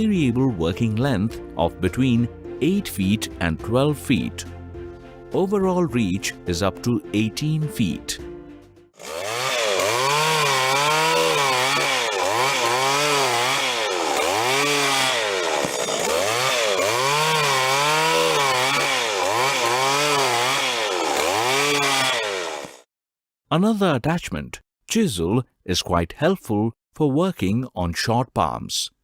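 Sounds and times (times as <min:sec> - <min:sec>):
small two-stroke engine revving: 0:09.0 - 0:22.9.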